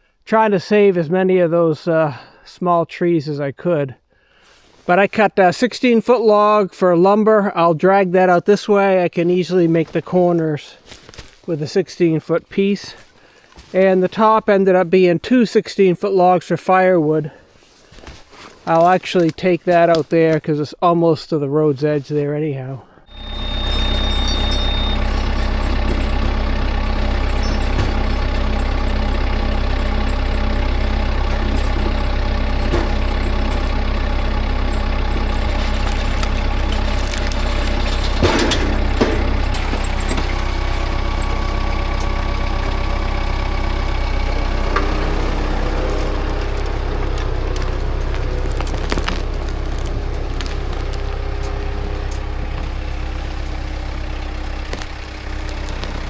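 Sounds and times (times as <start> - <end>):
metal clanks: 23.1 - 42.1
log-skidding machine engine running: 23.1 - 56.0.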